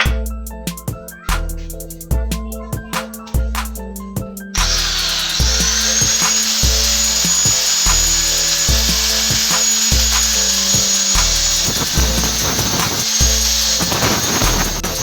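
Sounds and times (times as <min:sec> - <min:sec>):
background music with bass beat: 0:00.0 - 0:15.0
angle grinder grinding metal: 0:04.6 - 0:15.0.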